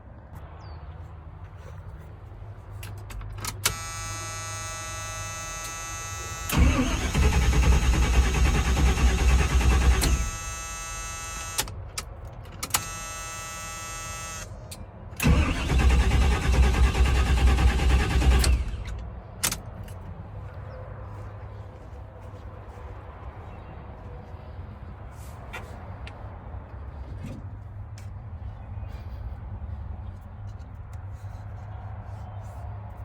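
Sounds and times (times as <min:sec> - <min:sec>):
engine cranking on starter: 0:06.4 - 0:11.7, 0:15.2 - 0:19.0.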